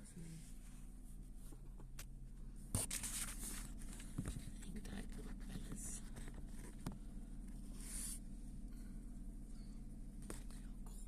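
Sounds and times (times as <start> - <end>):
steady low hum: 0.0 - 11.0
rustling handling noise: 2.8 - 4.7.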